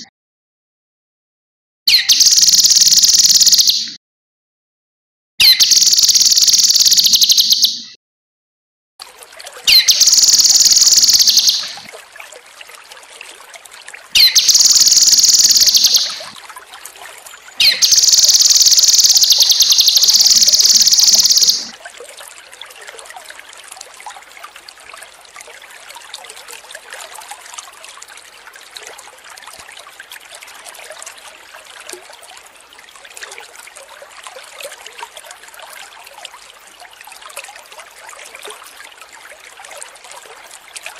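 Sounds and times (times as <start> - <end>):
bird singing high rapid phrases: 1.9 - 4.0, 5.4 - 7.9, 9.7 - 11.8, 14.2 - 16.3, 17.6 - 21.7
water trickling: 2.2 - 3.6, 5.6 - 7.5, 9.0 - 40.9.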